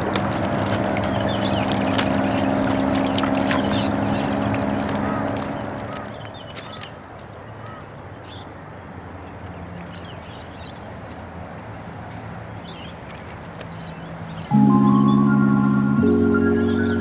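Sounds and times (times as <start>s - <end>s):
birds chirping: 0.0s - 11.2s, 12.1s - 17.0s
outdoor background noise: 0.0s - 17.0s
low hum: 14.5s - 17.0s.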